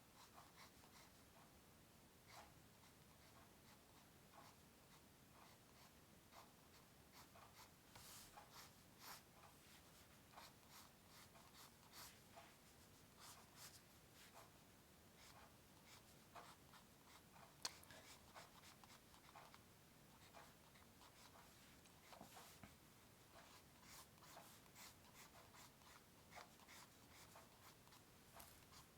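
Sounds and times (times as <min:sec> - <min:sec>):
drawing tool scratching paper: 0:23.4 - 0:28.9.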